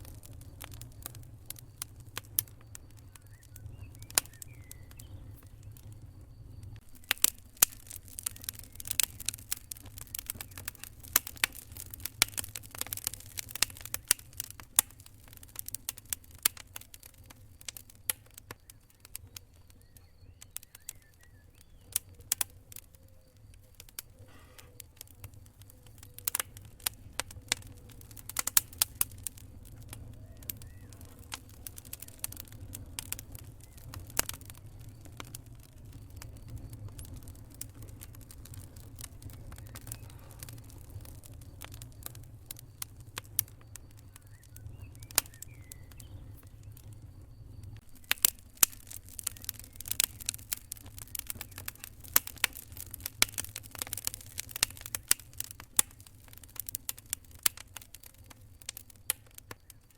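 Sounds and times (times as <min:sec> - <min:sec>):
campfire wood crackling: 0:00.0 - 0:59.9
sharp pops and snaps: 0:00.0 - 0:59.9.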